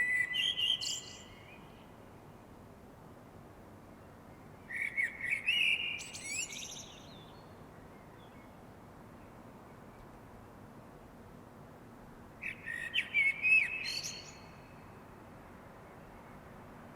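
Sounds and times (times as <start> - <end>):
songbird singing: 0.0 - 2.1, 4.0 - 10.5, 12.4 - 15.2
faint background hiss: 0.0 - 16.9.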